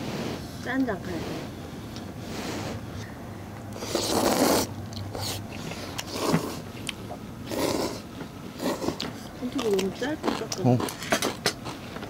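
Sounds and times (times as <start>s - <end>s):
people slurping noodles: 3.8s - 6.6s, 7.5s - 8.0s, 8.6s - 9.1s.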